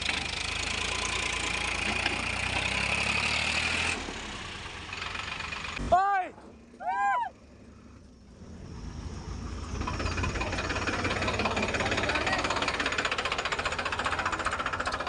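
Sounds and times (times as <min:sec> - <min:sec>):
tractor diesel engine knocking: 0:00.0 - 0:02.8, 0:04.6 - 0:05.9, 0:09.6 - 0:15.0.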